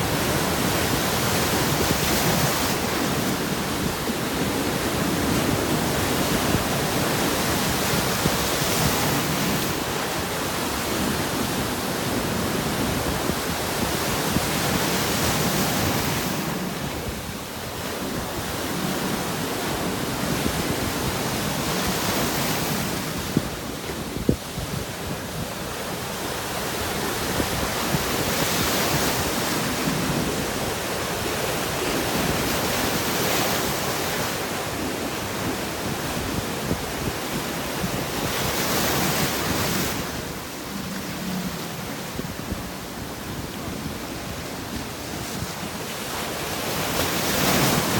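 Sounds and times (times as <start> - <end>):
sea waves breaking on rocks: 26.0 - 44.0, 44.6 - 47.9.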